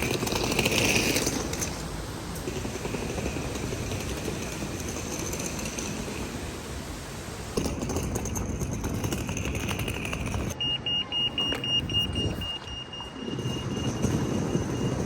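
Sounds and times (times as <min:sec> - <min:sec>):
rumbling vehicle noise: 0:00.0 - 0:15.0
high electronic beeps: 0:10.6 - 0:15.0.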